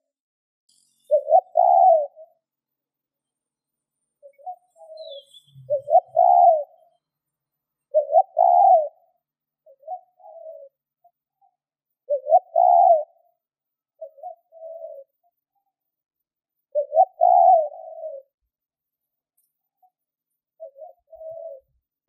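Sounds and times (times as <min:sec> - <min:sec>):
faint high chirp: 0:00.7 - 0:22.0
dove cooing: 0:01.1 - 0:02.4, 0:04.2 - 0:06.9, 0:07.9 - 0:10.8, 0:12.1 - 0:13.2, 0:14.0 - 0:15.1, 0:16.7 - 0:18.3, 0:20.6 - 0:21.8.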